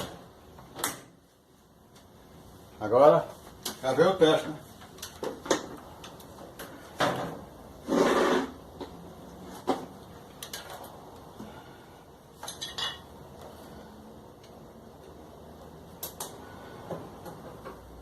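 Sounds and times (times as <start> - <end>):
short scrape: 7.8 - 8.6.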